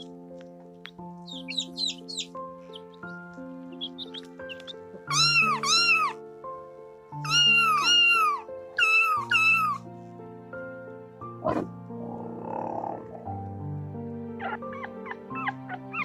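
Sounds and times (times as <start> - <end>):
soft background music: 0.0 - 16.0
cat meowing: 3.8 - 6.2, 7.2 - 9.8.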